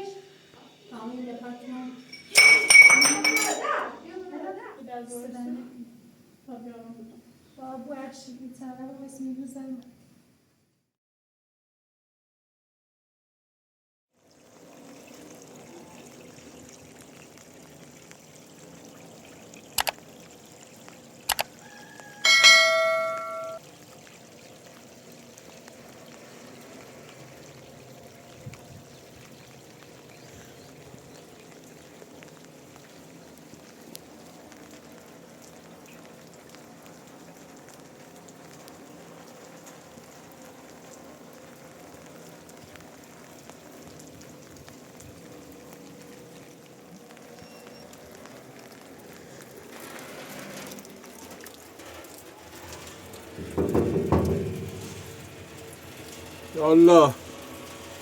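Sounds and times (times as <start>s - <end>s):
metallic clang ringing: 2.0s - 3.8s, 22.2s - 23.6s
sharp clicks: 19.8s - 20.0s, 21.3s - 21.5s.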